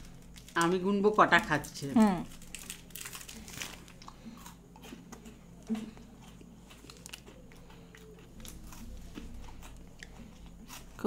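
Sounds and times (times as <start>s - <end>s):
faint chewing: 3.0s - 11.0s.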